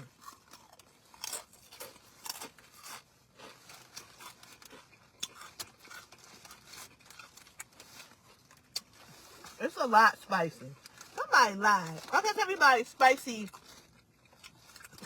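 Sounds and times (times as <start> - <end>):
person chewing food: 0.0 - 9.6, 13.5 - 15.0.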